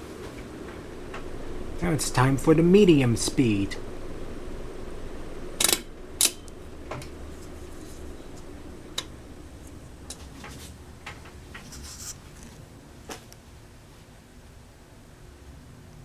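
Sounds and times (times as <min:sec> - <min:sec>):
ceiling fan humming and whooshing: 0:00.0 - 0:16.0
fan switch clicking: 0:05.6 - 0:07.3, 0:08.0 - 0:11.7.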